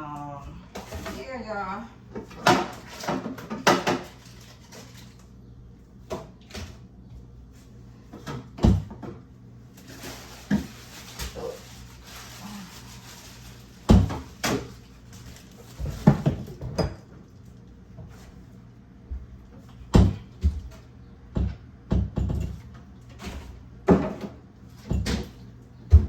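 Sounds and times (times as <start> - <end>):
containers knocking and clunking: 2.1 - 4.9, 15.7 - 17.2, 19.6 - 23.2.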